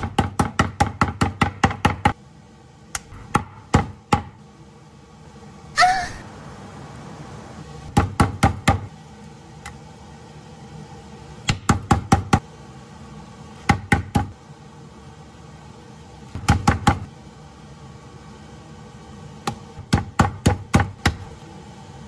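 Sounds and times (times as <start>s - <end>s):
meat mallet pounding on wood: 0.0s - 2.2s, 19.5s - 21.2s.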